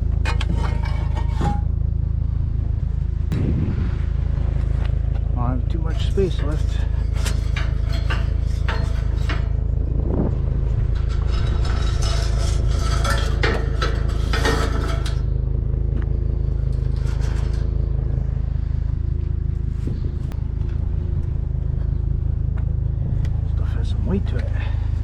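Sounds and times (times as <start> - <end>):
scrap metal clanking: 0.0 - 2.5, 4.7 - 22.8
steady low rumble: 0.0 - 25.0.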